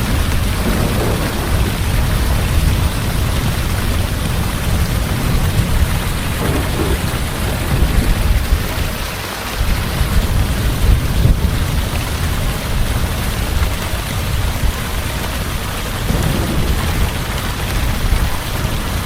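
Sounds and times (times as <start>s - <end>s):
thunder rumbling: 0.0s - 9.2s, 16.0s - 19.0s
heavy rain pouring: 0.0s - 19.0s.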